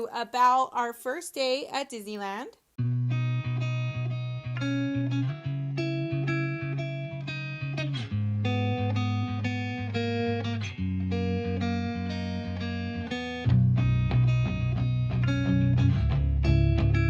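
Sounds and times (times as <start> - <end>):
plucked guitar music: 2.8 - 17.0
bass line: 8.1 - 17.0.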